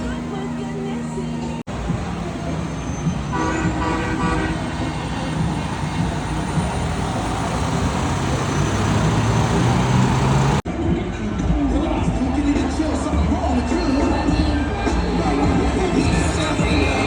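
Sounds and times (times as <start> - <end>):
truck horn: 0.0 - 10.6
truck engines and road noise: 0.0 - 17.0.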